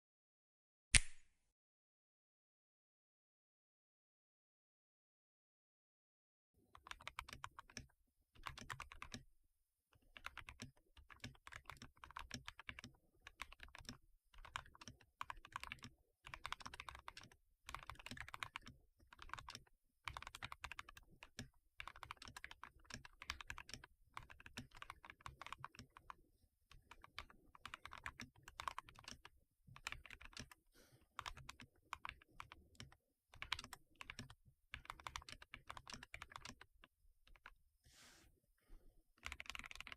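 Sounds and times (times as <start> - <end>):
mechanical keyboard typing: 6.8 - 9.2, 10.2 - 26.1, 26.8 - 30.6, 31.2 - 36.7, 39.2 - 39.9.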